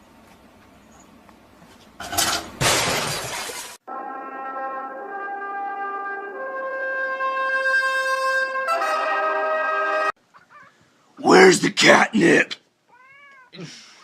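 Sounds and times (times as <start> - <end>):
loud crash: 2.1 - 3.8.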